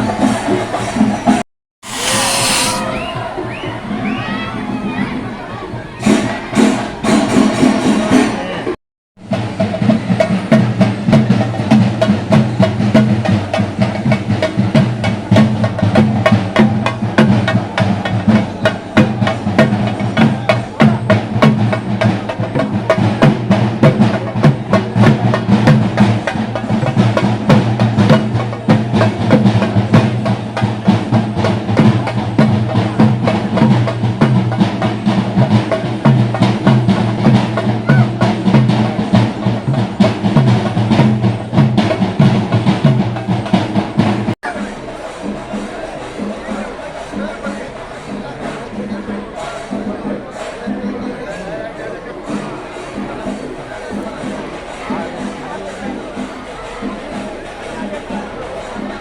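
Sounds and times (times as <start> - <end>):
drums beaten in fast roll: 0.0 - 59.0.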